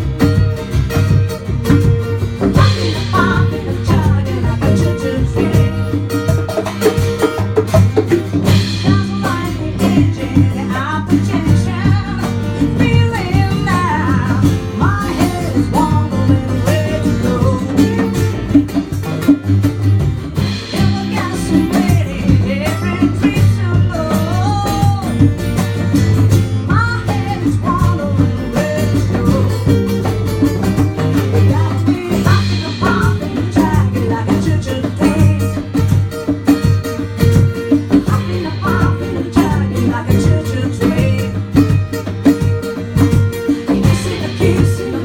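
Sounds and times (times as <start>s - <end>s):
cajon beat: 0.0s - 45.0s
strummed acoustic guitar: 0.0s - 45.0s
person singing: 2.4s - 6.7s, 8.5s - 18.8s, 20.6s - 25.3s, 26.7s - 30.4s, 31.1s - 36.1s, 37.6s - 42.5s, 43.2s - 45.0s.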